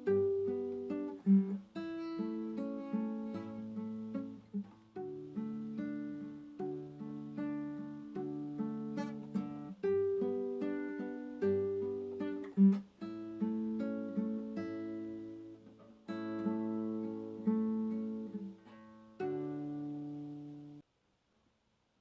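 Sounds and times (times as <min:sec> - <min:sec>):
gentle acoustic guitar music: 0:00.0 - 0:20.8.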